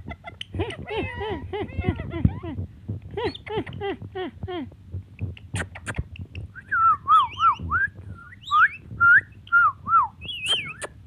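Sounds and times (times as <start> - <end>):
parrot whistling: 6.6 - 11.0.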